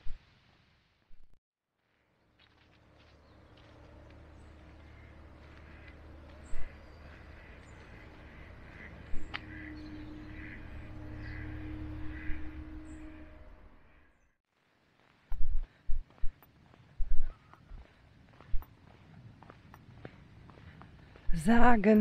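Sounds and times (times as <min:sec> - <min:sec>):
birds calling: 0:02.6 - 0:14.1, 0:16.2 - 0:21.5.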